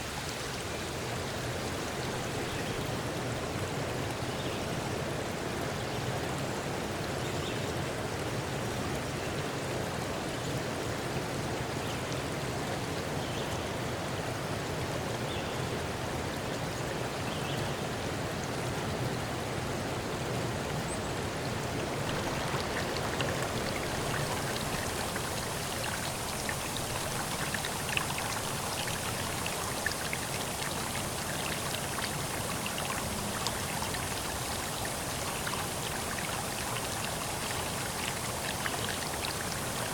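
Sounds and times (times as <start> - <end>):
water drips and splashes: 21.4 - 39.9
water rushing: 21.5 - 39.9.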